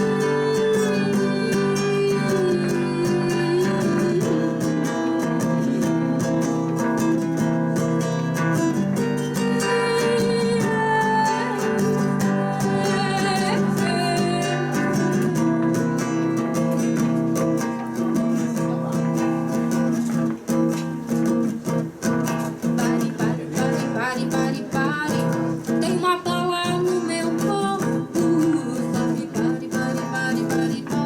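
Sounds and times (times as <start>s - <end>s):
strummed acoustic guitar: 0.0s - 31.0s.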